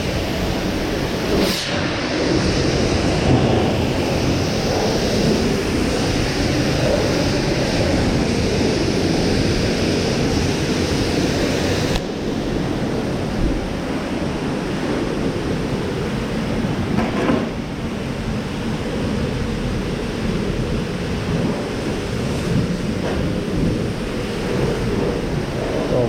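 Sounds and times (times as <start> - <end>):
pressure washer water jet hissing: 0.0 - 16.4
low running rumble: 17.6 - 26.0.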